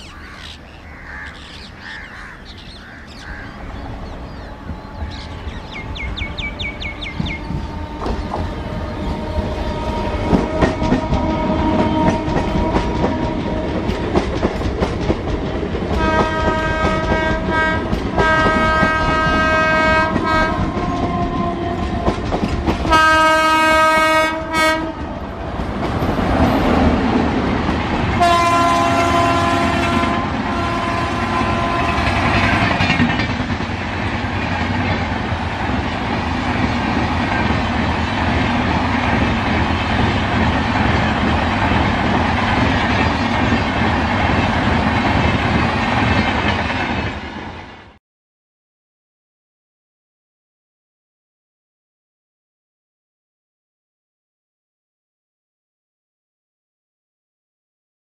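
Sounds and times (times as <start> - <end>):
train coaches rumbling past: 0.0 - 48.0
clickety-clack over rail joints: 4.5 - 47.9
locomotive air horn blasts: 6.8 - 13.8, 16.0 - 22.2, 22.9 - 25.1, 28.2 - 32.5.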